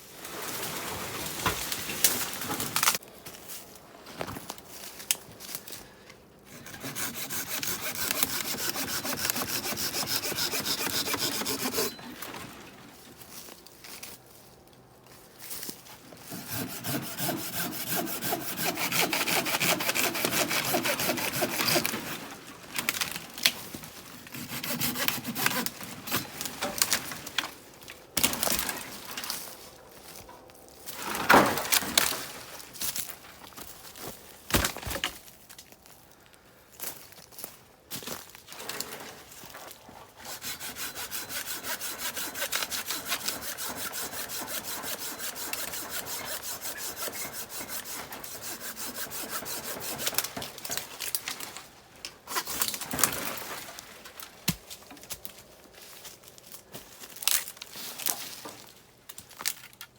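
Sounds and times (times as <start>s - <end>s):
hand saw cutting wood: 6.5s - 12.5s, 16.2s - 23.1s, 24.2s - 27.3s, 40.2s - 51.1s, 52.3s - 53.6s.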